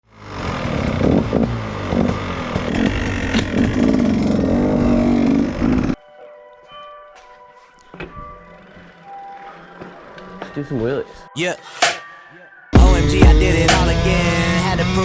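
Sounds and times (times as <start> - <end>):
dirt bike engine revving: 0.0 - 6.0.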